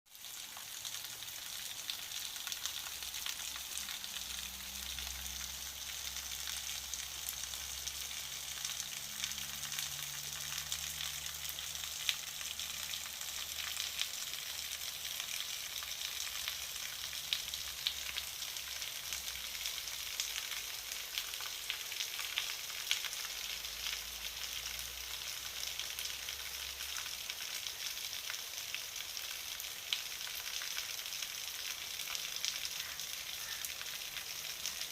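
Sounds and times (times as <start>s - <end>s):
steady rain falling: 0.1s - 34.9s.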